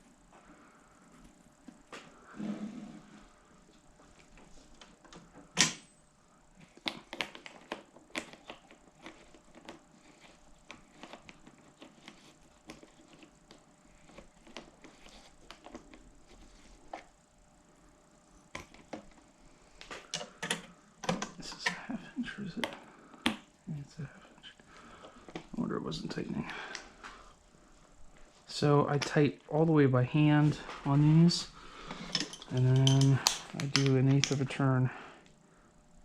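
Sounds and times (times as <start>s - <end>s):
hand tools clicking and clinking: 32.0s - 34.4s.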